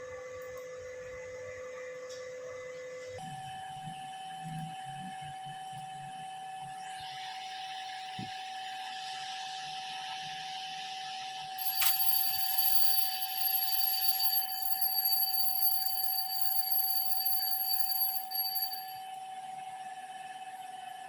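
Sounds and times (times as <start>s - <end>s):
higher-pitched electronic tones: 11.6s - 19.0s
steady electronic tone: 11.6s - 19.0s.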